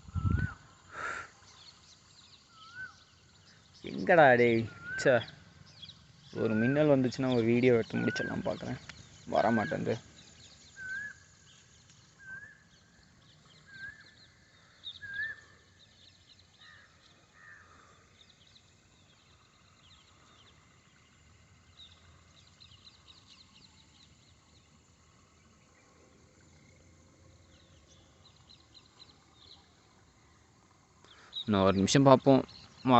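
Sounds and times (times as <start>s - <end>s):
high bird chirping: 0.0s - 25.6s
bird calls: 0.0s - 32.9s.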